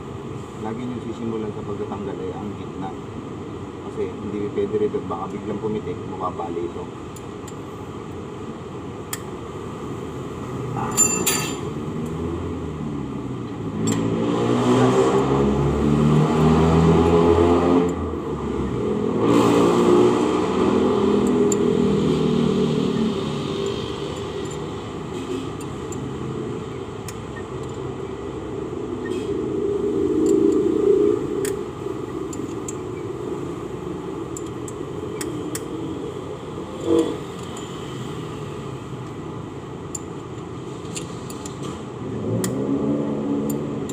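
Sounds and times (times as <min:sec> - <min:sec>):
steady background hum: 0:00.0 - 0:14.1, 0:15.2 - 0:43.9
motor vehicles passing by: 0:09.6 - 0:43.9
metallic clicks and clinks: 0:10.8 - 0:11.7, 0:23.6 - 0:24.8.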